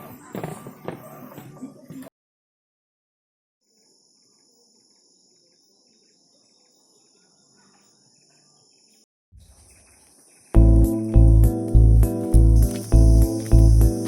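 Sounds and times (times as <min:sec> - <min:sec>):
insect chirping: 0:03.6 - 0:14.0
insects buzzing: 0:03.7 - 0:14.0.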